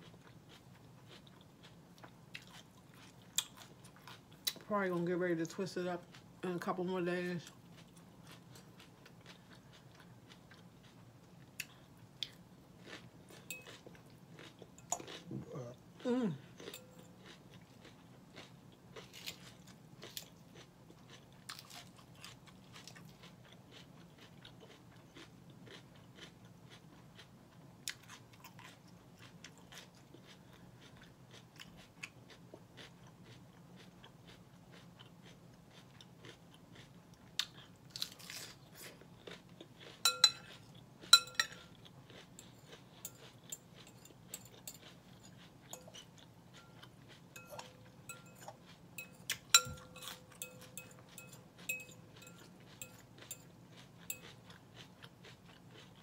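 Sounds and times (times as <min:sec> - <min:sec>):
chewing crunchy lettuce: 0:00.0 - 0:56.0
metal fork clinking glass bowl: 0:13.5 - 0:13.8, 0:40.0 - 0:40.5, 0:41.1 - 0:41.6, 0:43.8 - 0:44.8, 0:47.4 - 0:53.4.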